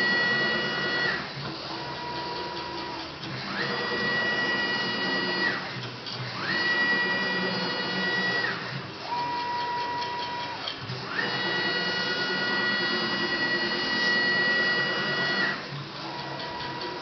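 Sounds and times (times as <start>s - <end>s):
lower-pitched motor whine: 0.0s - 17.0s.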